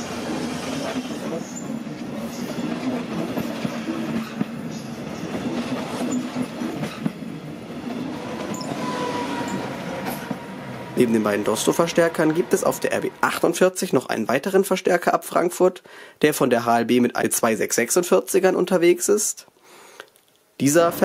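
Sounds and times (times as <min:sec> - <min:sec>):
train rolling past: 0:00.0 - 0:14.6
wheels clattering over rail joints: 0:00.6 - 0:13.4
faint wheel squeal: 0:08.4 - 0:10.3.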